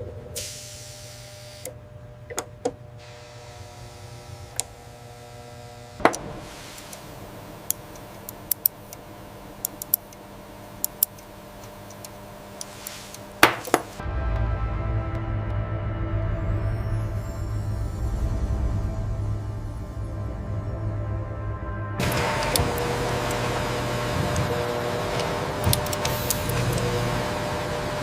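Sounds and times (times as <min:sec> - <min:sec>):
steady hum: 0:00.0 - 0:28.0
sharp clicks and taps: 0:07.7 - 0:09.0, 0:09.6 - 0:10.2.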